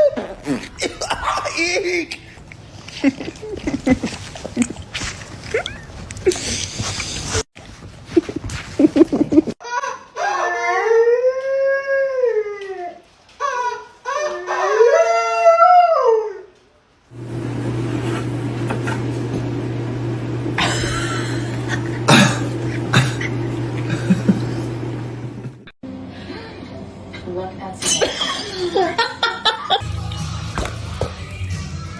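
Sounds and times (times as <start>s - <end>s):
dog howling: 10.2s - 13.0s, 14.1s - 16.5s.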